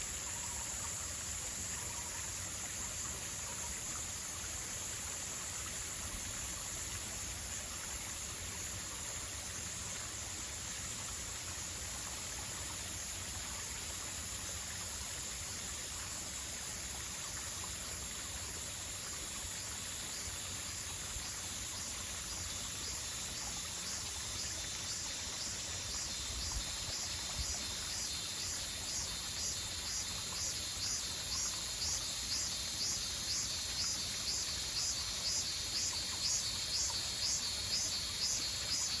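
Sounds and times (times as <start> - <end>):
insect pulsing chirp: 0.0 - 7.6, 18.9 - 39.0
insects droning: 0.0 - 39.0
steady hiss: 0.0 - 39.0.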